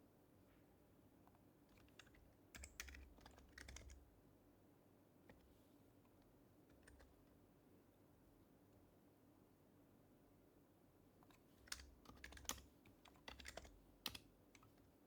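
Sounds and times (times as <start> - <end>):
soft keyboard keystrokes: 1.2 - 4.1, 5.2 - 7.3, 11.2 - 15.0.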